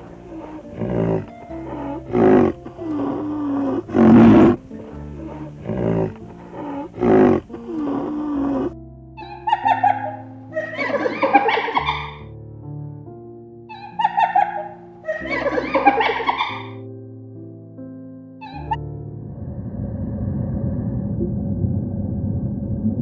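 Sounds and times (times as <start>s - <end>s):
animal roars: 0.0s - 8.8s, 18.4s - 23.0s
background music: 0.0s - 22.2s
higher-pitched animal calls: 5.2s - 12.2s, 13.7s - 16.8s, 18.4s - 18.8s.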